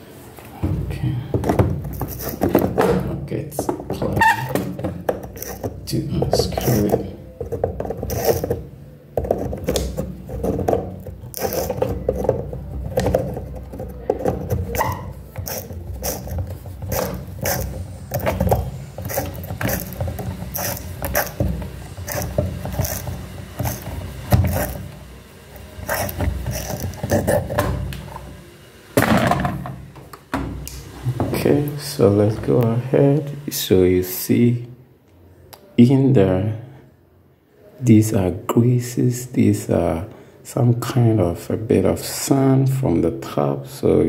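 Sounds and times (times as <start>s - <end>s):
handling knocks: 0.6s - 25.0s
threaded hose coupling clicks and scrapes: 5.2s - 5.8s, 14.6s - 21.4s, 22.1s - 24.8s, 25.9s - 27.7s.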